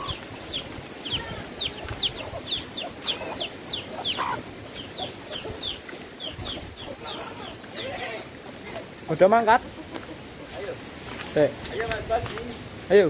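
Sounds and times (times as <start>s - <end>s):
bird chirping: 0.0s - 8.6s.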